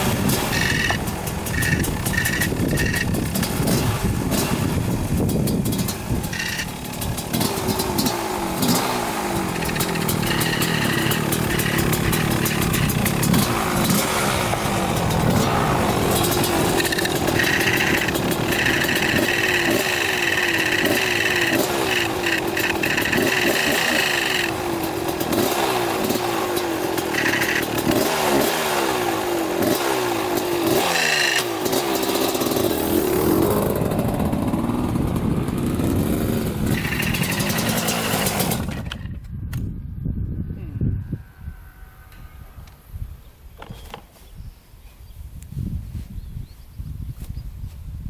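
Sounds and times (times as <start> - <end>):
dirt bike engine revving: 0.0 - 39.1.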